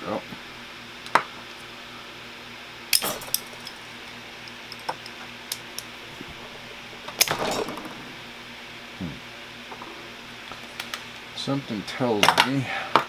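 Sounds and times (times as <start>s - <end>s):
fan parts clicking and clinking: 2.9s - 8.4s, 12.1s - 13.0s
clattering rattle: 3.0s - 8.3s.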